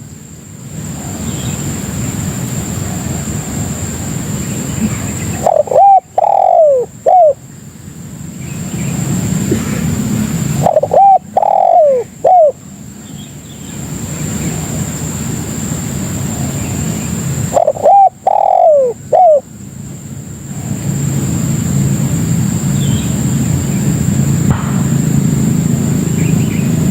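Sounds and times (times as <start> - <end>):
dove cooing: 4.7 - 7.5, 9.3 - 12.7, 16.3 - 19.5
thin high whine: 20.6 - 26.9
low rumble: 23.0 - 26.9.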